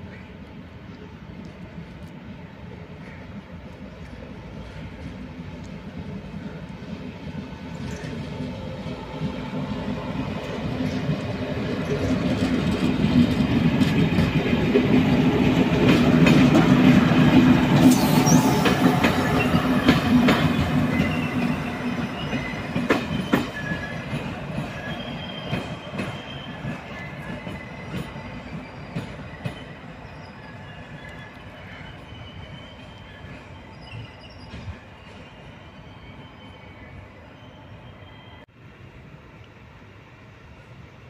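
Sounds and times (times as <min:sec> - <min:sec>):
train running hum: 0:00.0 - 0:41.0
wheel squeal: 0:17.8 - 0:24.0, 0:24.7 - 0:38.4.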